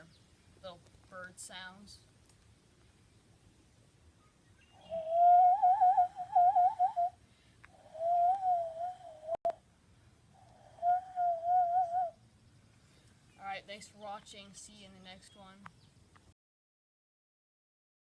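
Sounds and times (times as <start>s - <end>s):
cupped-hand bird call whistling: 4.6s - 7.2s, 7.8s - 9.4s, 10.8s - 12.2s.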